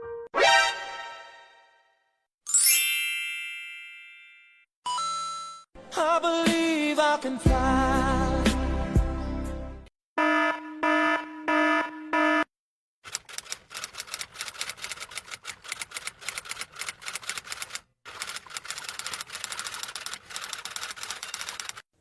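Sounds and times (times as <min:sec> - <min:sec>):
fast typing clicks: 0:13.0 - 0:21.8.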